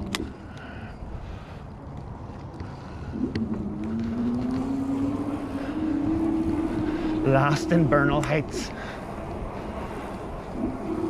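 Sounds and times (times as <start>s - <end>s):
wind buffeting microphone: 0.0s - 11.0s
electric motor whine: 3.1s - 8.2s, 9.1s - 11.0s.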